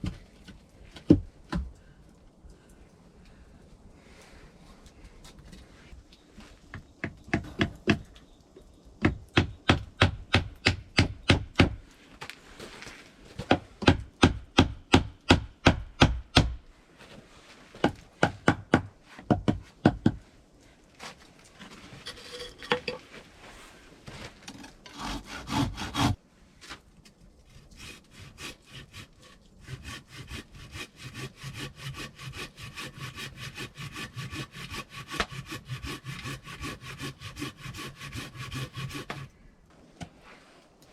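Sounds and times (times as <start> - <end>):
hand saw cutting wood: 24.5 - 26.2, 27.5 - 39.3.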